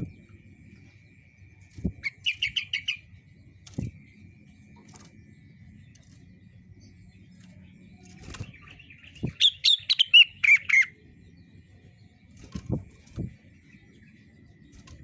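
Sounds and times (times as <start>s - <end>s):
songbird whistling: 2.0s - 3.1s, 8.3s - 11.0s.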